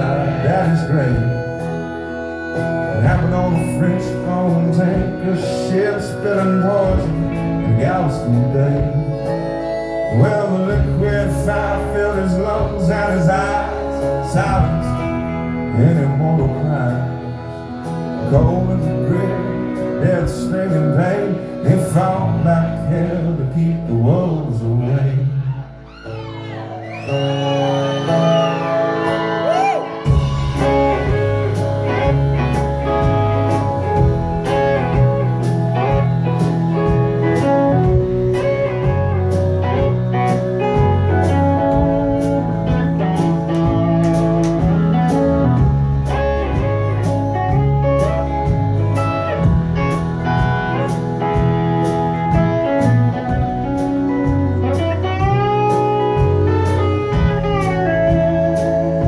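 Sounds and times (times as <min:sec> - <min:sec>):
bass and drums beat: 0:00.0 - 0:17.0, 0:17.6 - 0:22.6, 0:27.4 - 0:59.0
slide guitar gliding notes: 0:00.0 - 0:59.0.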